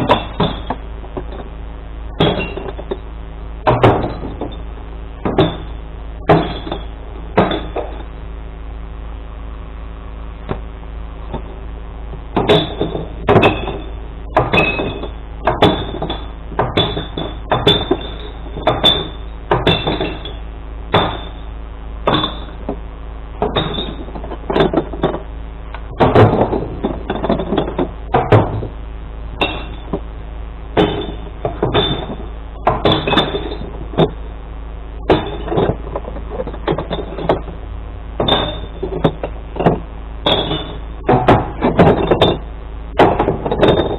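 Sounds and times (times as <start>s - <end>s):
glass bottles clattering: 0.0s - 1.5s, 2.2s - 3.0s, 3.7s - 8.1s, 12.3s - 20.4s, 21.0s - 21.5s, 22.1s - 22.8s, 23.4s - 28.7s, 29.4s - 30.1s, 30.8s - 34.2s, 35.1s - 37.6s, 38.2s - 43.9s.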